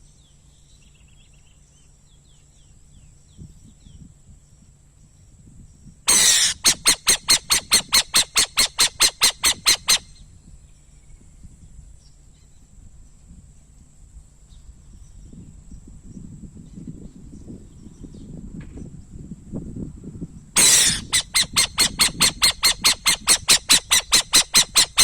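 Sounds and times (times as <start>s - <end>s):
owl rasping notes: 6.1s - 10.1s, 20.6s - 25.0s
owl screeching: 6.1s - 10.1s, 20.6s - 25.0s.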